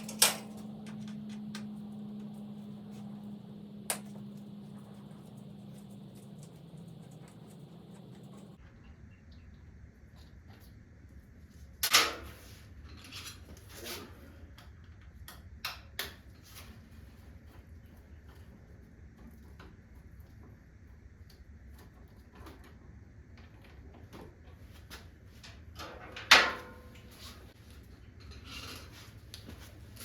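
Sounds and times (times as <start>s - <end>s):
faint low hum: 0.0s - 11.8s.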